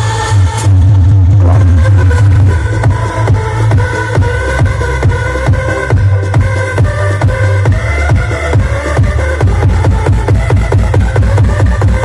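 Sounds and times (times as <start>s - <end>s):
electronic dance music heavy bass: 0.0s - 12.0s.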